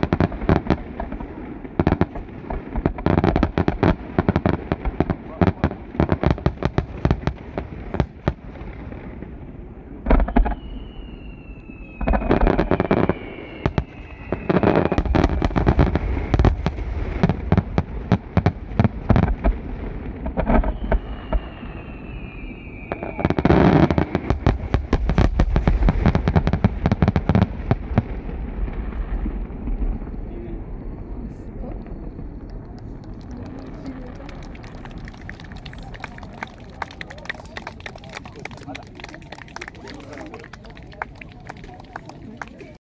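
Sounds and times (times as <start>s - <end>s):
fireworks bursting and crackling: 0.0s - 42.8s
fireworks whistles sliding down: 10.2s - 16.5s, 20.5s - 24.1s.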